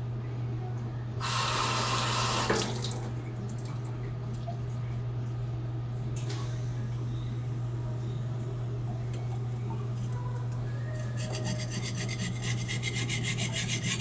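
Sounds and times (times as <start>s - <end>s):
water running from a tap: 1.2s - 4.4s.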